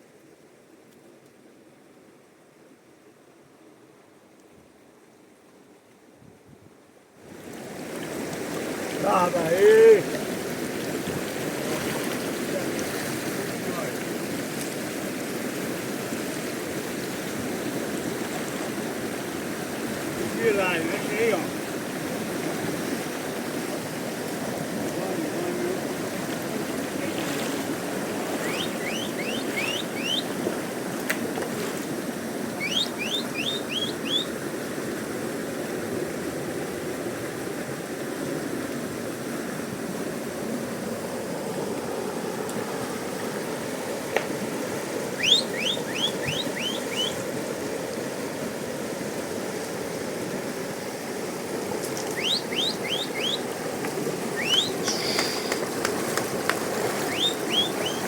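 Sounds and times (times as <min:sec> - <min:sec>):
river rushing: 0:07.2 - 0:58.0
bird chirping: 0:28.4 - 0:30.3, 0:32.6 - 0:34.3, 0:45.2 - 0:47.2, 0:52.0 - 0:53.5, 0:54.3 - 0:55.6, 0:57.0 - 0:58.0.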